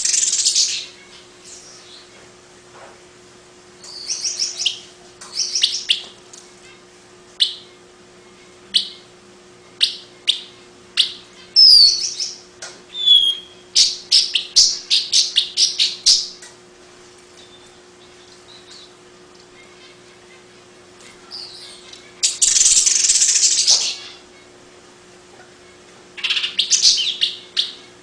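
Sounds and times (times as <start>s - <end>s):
bird chattering chirps: 0.0s - 2.1s, 9.8s - 16.3s, 21.3s - 24.2s, 26.2s - 27.8s.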